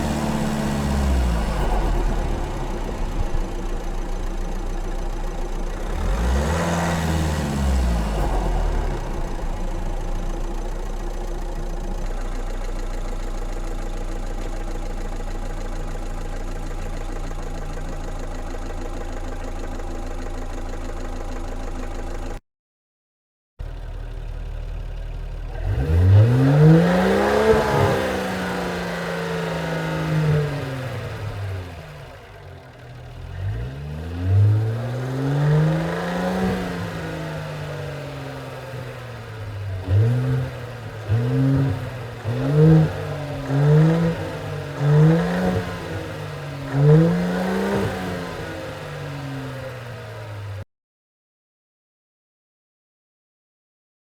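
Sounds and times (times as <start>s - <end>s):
car engine revving: 0.0s - 12.4s, 25.4s - 32.1s, 33.2s - 50.6s
car engine idling: 0.0s - 22.4s, 23.6s - 27.1s, 36.3s - 50.6s.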